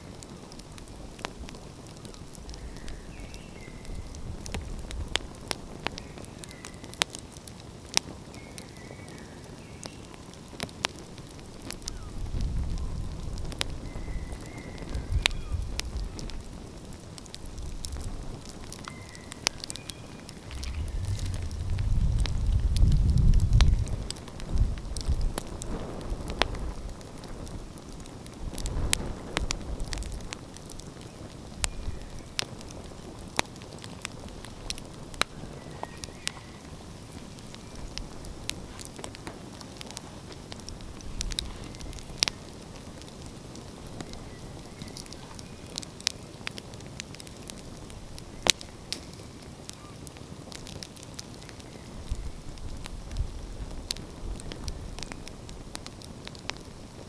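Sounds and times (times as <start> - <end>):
wood fire crackling: 0.0 - 57.0
low rumble: 20.4 - 24.8.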